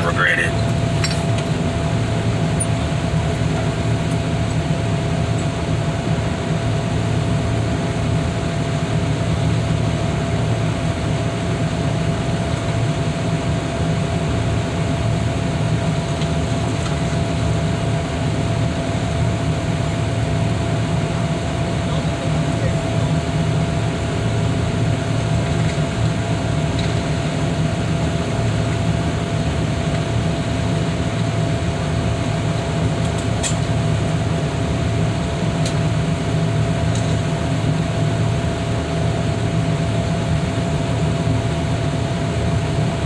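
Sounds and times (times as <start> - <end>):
high whine: 0.0 - 1.3
engine low drone: 0.0 - 12.8.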